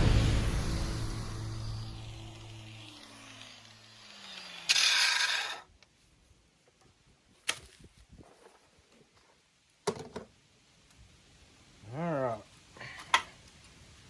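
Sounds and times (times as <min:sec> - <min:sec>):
harsh burst of noise: 0:00.0 - 0:04.6
power tool spinning down whine: 0:00.0 - 0:05.7.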